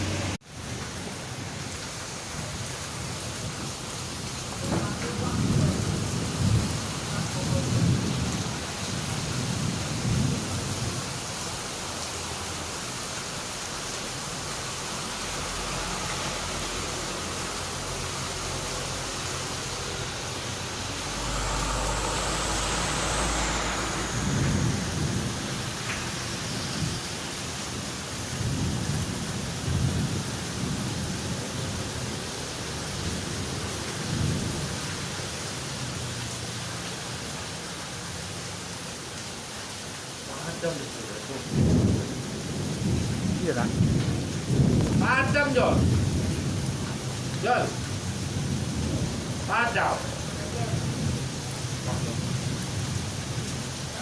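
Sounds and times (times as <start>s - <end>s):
heavy rain: 0.0s - 54.0s
thunder rumbling: 4.6s - 11.1s, 15.4s - 31.8s, 41.5s - 46.9s.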